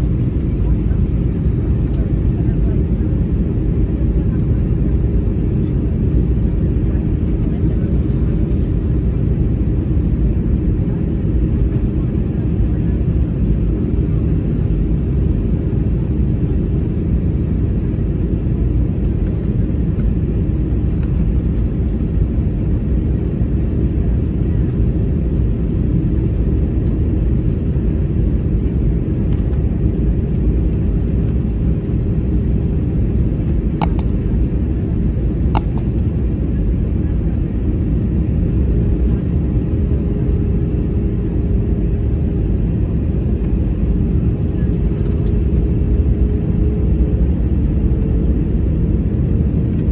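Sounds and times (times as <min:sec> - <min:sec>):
airliner cabin engine roar: 0:00.0 - 0:49.9
sharp clicks: 0:33.8 - 0:34.1, 0:35.6 - 0:36.0.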